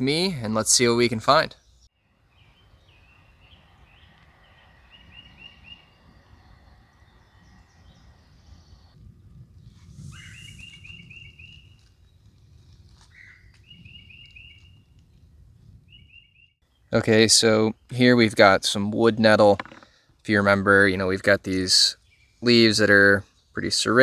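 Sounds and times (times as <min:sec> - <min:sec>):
songbird singing: 0:01.0 - 0:24.0.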